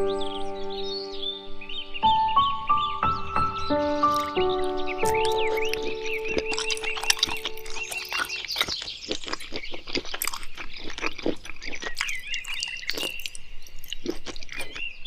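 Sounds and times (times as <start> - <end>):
bird chirping: 0.0 - 15.0
animal chewing and crunching: 4.1 - 15.0.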